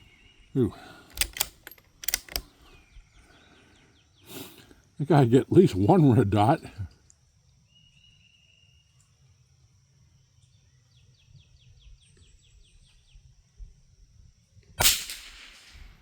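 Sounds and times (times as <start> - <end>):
insect drone: 0.1 - 16.0
rifle shot: 14.8 - 16.0.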